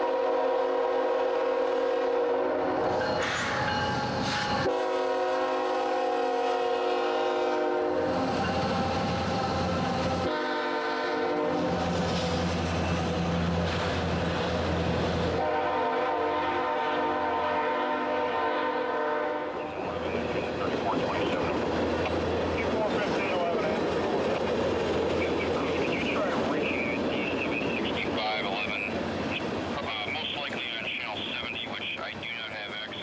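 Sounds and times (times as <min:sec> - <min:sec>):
locomotive horn blasts: 0:00.0 - 0:03.0, 0:04.6 - 0:08.2, 0:10.2 - 0:11.8, 0:15.4 - 0:19.6
freight train passing: 0:00.0 - 0:33.0
wheel clatter of rail cars: 0:02.8 - 0:04.7, 0:08.0 - 0:10.3, 0:11.4 - 0:15.6, 0:19.6 - 0:33.0.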